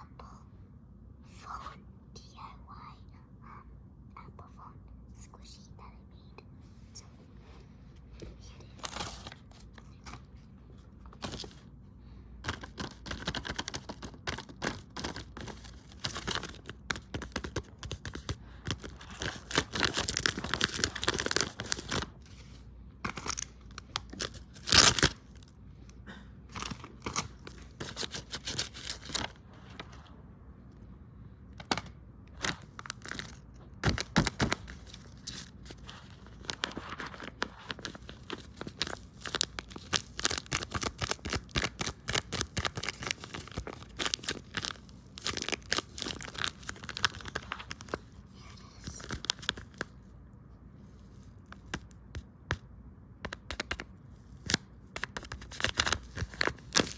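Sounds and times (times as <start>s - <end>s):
packaging rustling and tearing: 8.8s - 10.2s, 12.4s - 25.5s, 26.5s - 29.9s, 31.6s - 48.2s, 48.8s - 49.9s, 54.4s - 56.9s.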